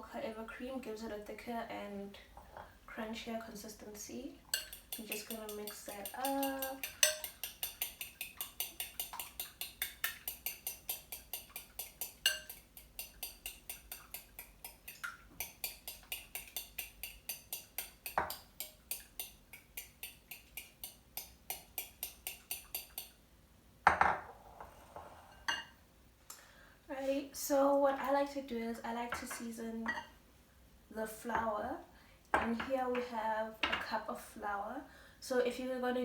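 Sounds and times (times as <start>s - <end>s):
utensil tapping bowl while beating: 4.5s - 23.2s.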